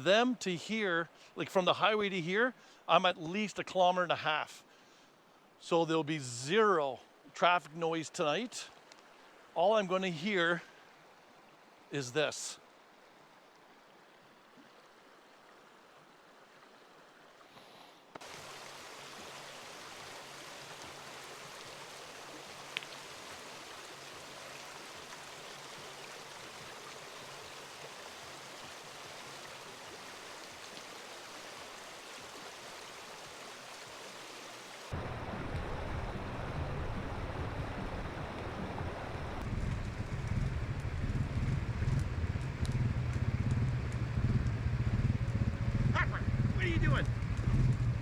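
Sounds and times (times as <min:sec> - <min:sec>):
flowing river rushing: 0:18.2 - 0:39.4
low rumble: 0:35.0 - 0:48.0.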